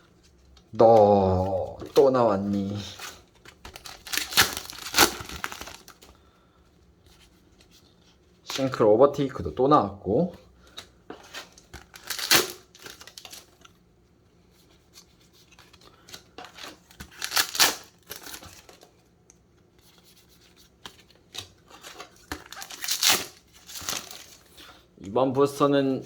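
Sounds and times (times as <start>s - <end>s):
cards rubbing and clicking: 0.9s - 5.9s
foil wrapper rustling: 1.0s - 6.1s, 11.4s - 13.7s, 15.6s - 18.9s, 21.7s - 24.8s.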